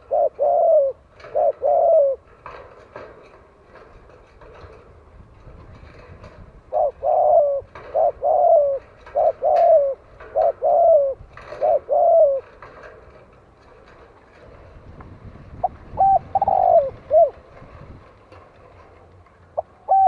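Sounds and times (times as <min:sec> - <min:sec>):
dove cooing: 0:00.0 - 0:03.2, 0:05.8 - 0:13.0, 0:15.6 - 0:17.6, 0:19.6 - 0:20.0.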